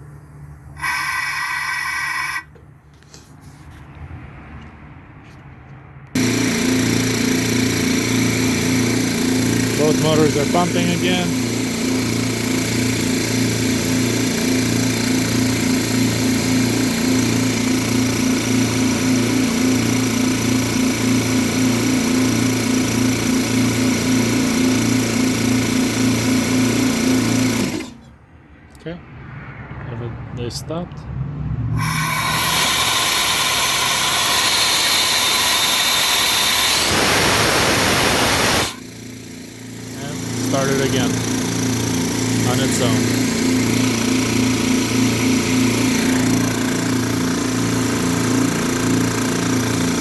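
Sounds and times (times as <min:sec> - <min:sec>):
air compressor pulsing drone: 0:00.0 - 0:03.2, 0:06.1 - 0:28.1, 0:31.8 - 0:50.0
compressed air hissing: 0:31.8 - 0:48.5.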